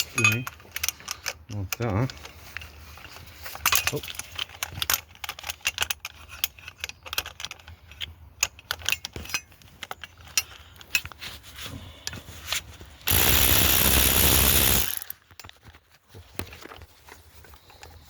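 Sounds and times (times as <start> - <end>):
metal tools clinking and rattling: 0.0 - 11.1
loud hissing rush: 13.1 - 15.1.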